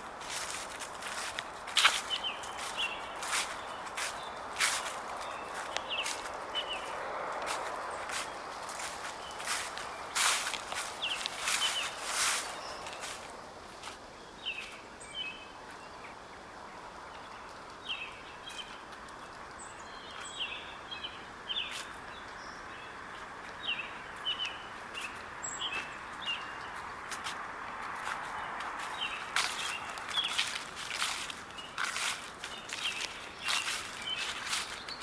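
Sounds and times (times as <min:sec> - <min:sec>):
footsteps on dry leaves: 0:00.0 - 0:14.8, 0:23.9 - 0:35.0
small songbirds chirping: 0:00.0 - 0:35.0.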